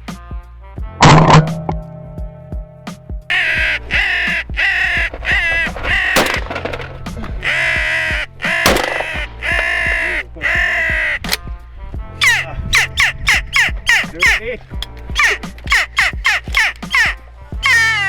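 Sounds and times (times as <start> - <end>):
low music bed: 0.0 - 18.0
crow cawing: 3.3 - 6.5, 7.4 - 11.4, 12.2 - 14.4, 15.2 - 18.0.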